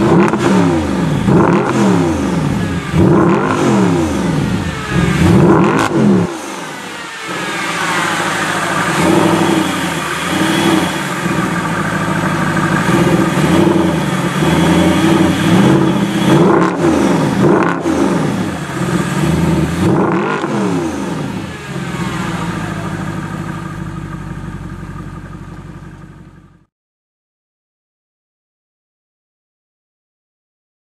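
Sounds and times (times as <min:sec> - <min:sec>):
car engine accelerating through gears: 0:00.0 - 0:26.3.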